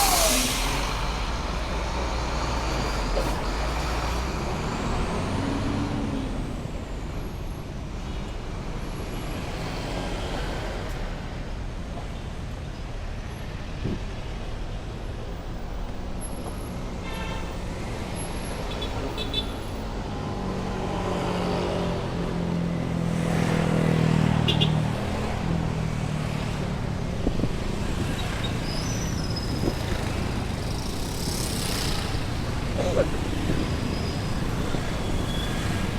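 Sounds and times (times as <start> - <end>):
large vehicle engine passing: 0.0 - 6.5, 20.3 - 35.9
cars and motorcycles passing: 15.4 - 35.9.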